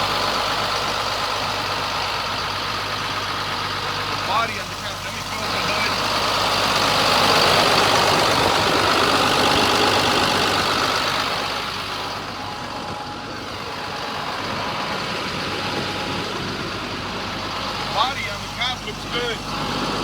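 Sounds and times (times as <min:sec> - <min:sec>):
diesel truck engine idling: 0:00.0 - 0:20.0.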